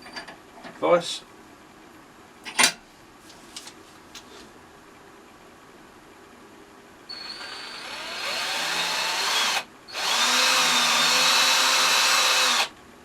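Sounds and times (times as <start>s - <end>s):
small power tool motor whine: 7.1s - 12.7s.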